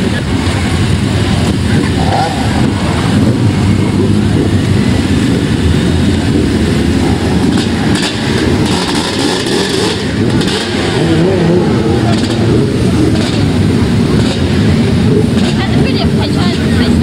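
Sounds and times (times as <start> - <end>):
racing motorbike engines revving: 0.0 - 17.0.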